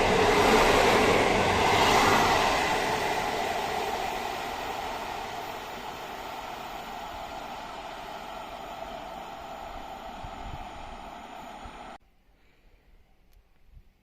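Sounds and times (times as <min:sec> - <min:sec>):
passing train: 0:00.0 - 0:12.0.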